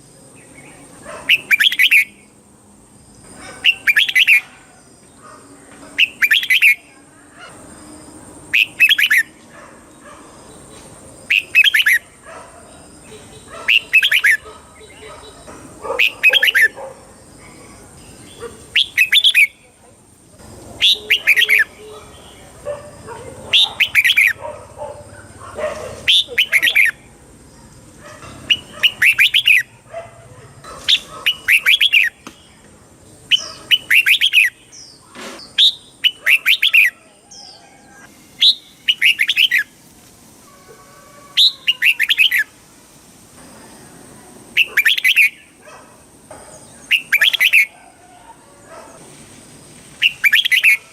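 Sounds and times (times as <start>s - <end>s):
bulbul singing: 0.3s - 2.4s, 3.2s - 4.6s, 5.9s - 7.0s, 7.8s - 9.5s, 10.5s - 19.8s, 20.4s - 25.4s, 26.0s - 27.1s, 28.2s - 29.9s, 30.6s - 39.8s, 41.3s - 42.6s, 44.5s - 45.6s, 46.5s - 47.7s, 50.0s - 50.9s
faint bird chatter: 3.2s - 39.8s, 40.4s - 42.6s, 43.6s - 49.1s, 50.0s - 50.9s.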